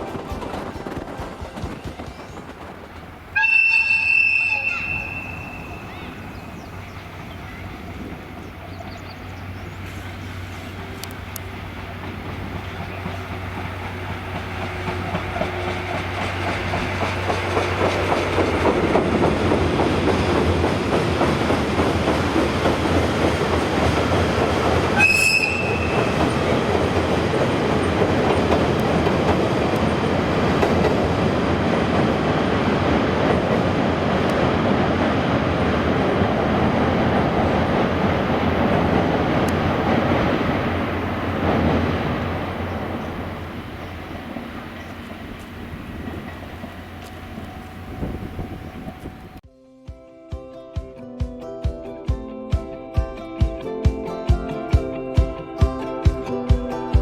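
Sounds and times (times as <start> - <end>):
train wheels on rails: 0.0 - 49.4
train horn blast: 3.4 - 6.6, 25.0 - 26.4.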